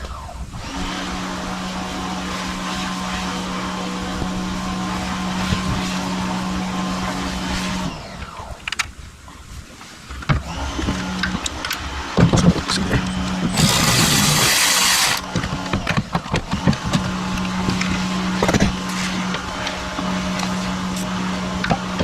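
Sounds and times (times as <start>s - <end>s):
loud hiss: 13.6s - 15.2s.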